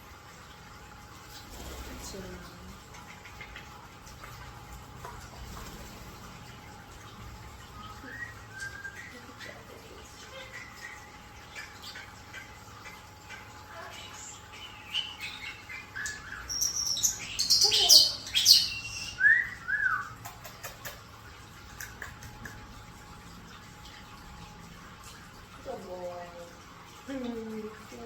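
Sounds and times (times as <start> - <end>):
faint steady hum: 0.0 - 28.0
birds squawking and chirping: 5.4 - 21.1
bird whistles rising and falling: 8.0 - 9.2, 15.0 - 20.2.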